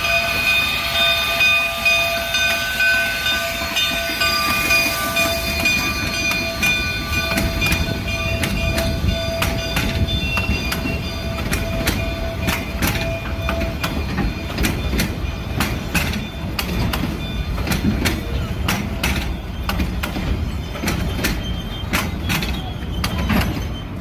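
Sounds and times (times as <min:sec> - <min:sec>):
train rumble: 0:00.0 - 0:24.0
train wheels clanking over rail joints: 0:00.0 - 0:24.0
faint steady squeal: 0:19.2 - 0:24.0.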